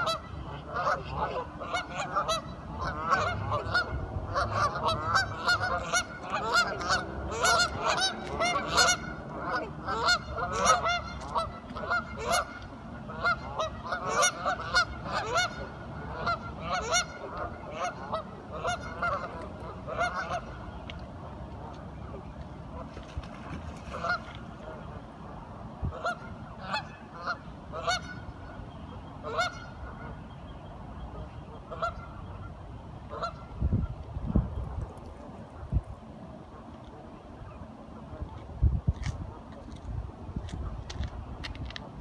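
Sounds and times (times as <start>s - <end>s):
ducks quacking: 0.0s - 20.7s, 22.8s - 25.1s, 25.9s - 28.6s, 29.2s - 30.2s, 31.1s - 33.9s.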